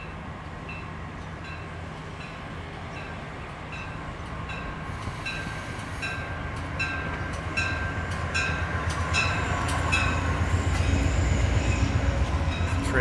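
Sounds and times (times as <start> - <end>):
train low rumble: 0.0 - 13.0
wheels clicking over rail joints: 3.7 - 11.0.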